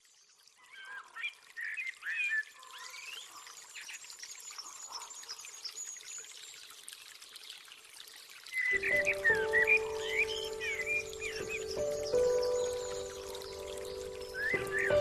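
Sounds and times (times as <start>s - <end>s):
running water trickling: 0.0s - 15.0s
birds chirping and calling: 8.6s - 15.0s.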